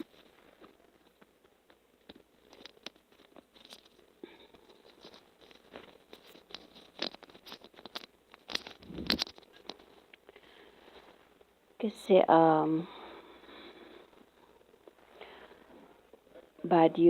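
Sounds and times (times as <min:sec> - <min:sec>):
short rustles: 0:02.2 - 0:11.6.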